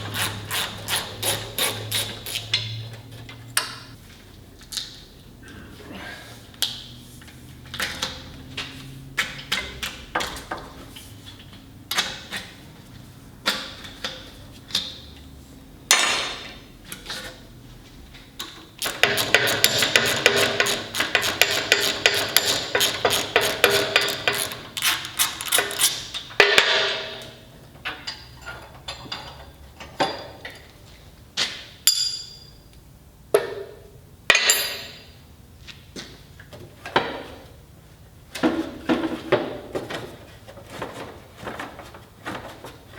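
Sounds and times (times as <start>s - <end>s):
metal tools knocking and clanking: 18.8s - 27.3s.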